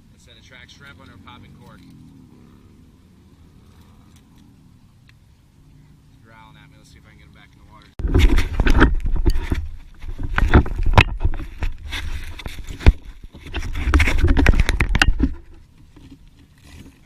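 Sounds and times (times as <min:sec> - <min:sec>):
knocks and scraping on kayak: 0:08.0 - 0:17.0.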